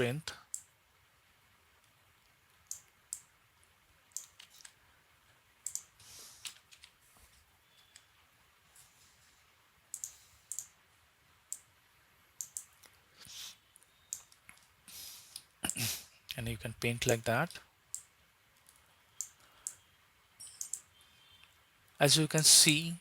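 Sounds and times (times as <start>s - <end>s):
computer mouse clicking: 2.6s - 3.3s, 4.1s - 4.8s, 5.6s - 7.0s, 9.9s - 10.8s, 12.4s - 13.0s, 13.8s - 14.7s, 17.9s - 19.8s, 20.4s - 21.5s.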